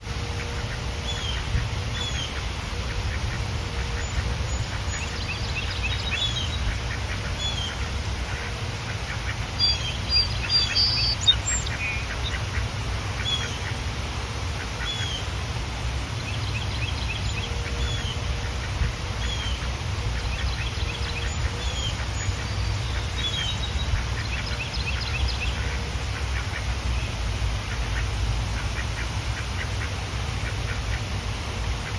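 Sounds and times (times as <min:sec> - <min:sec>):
ducks quacking: 0:00.1 - 0:13.9, 0:17.3 - 0:26.8.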